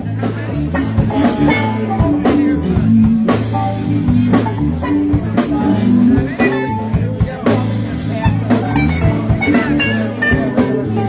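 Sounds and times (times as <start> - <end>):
bass line: 0.0 - 11.0
drum kit beat: 0.0 - 11.0
electric guitar: 0.0 - 11.0.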